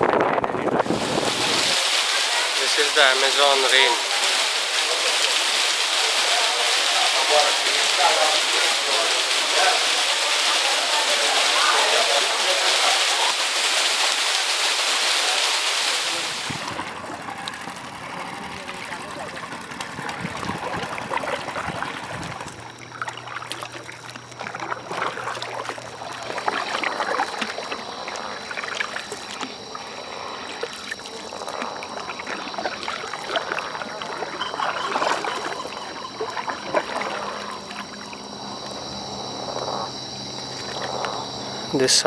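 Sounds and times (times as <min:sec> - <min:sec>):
high-pitched frog chorus: 0:16.0 - 0:42.0.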